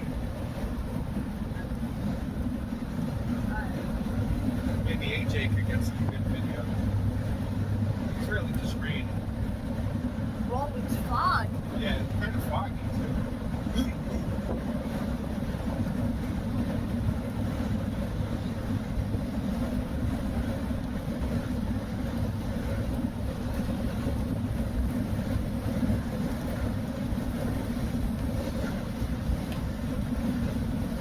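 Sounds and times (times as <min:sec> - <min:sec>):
car driving on wet road: 0:00.0 - 0:31.0.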